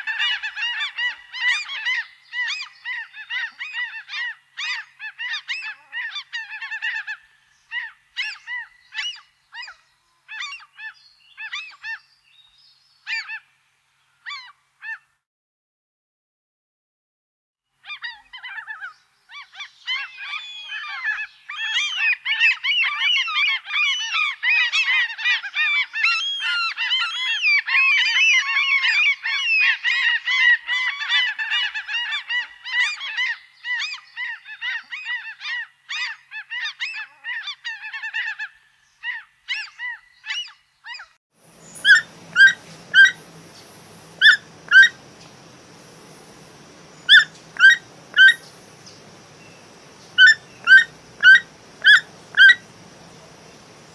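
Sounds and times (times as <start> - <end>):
sharp bird calls: 0.0 - 13.5, 17.8 - 53.9
steady hiss: 41.4 - 53.9
geese honking: 41.6 - 48.6, 50.1 - 53.9.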